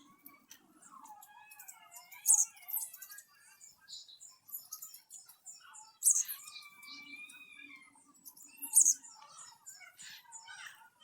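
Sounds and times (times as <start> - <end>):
birds chirping: 0.0 - 10.9
sharp loud bird squeaks: 2.3 - 2.5.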